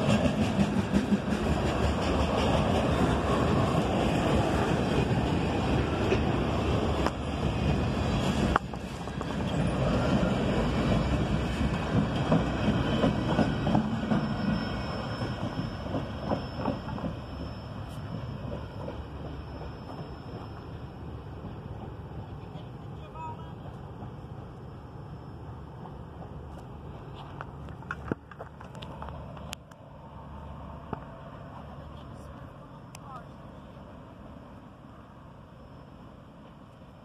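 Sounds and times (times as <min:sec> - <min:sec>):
train wheels clattering over rails: 0:00.0 - 0:22.4.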